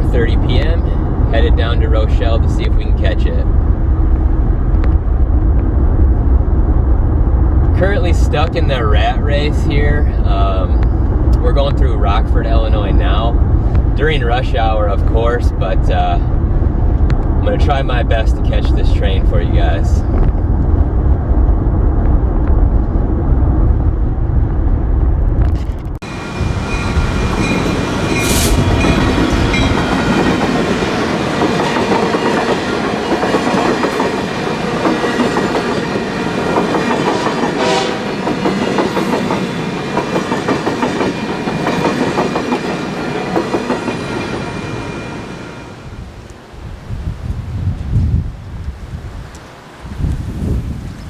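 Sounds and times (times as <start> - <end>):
low road rumble: 0.0 - 51.0
passenger train passing: 0.0 - 51.0.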